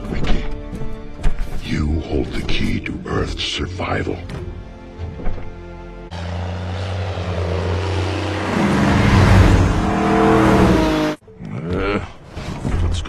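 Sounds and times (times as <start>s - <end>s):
car engines revving: 6.0s - 11.2s
car driving past: 6.1s - 11.2s.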